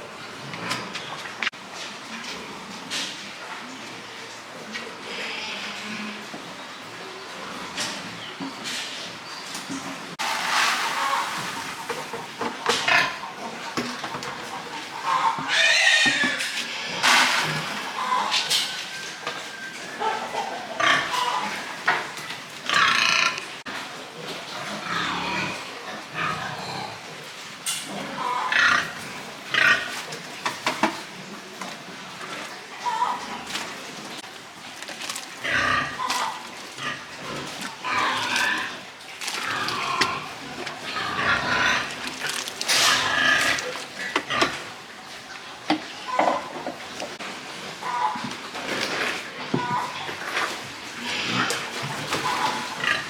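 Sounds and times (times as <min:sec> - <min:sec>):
pigs grunting and squealing: 0:12.6 - 0:30.2, 0:31.1 - 0:45.2, 0:45.8 - 0:53.0
piglets calling: 0:14.8 - 0:17.2, 0:35.0 - 0:44.4.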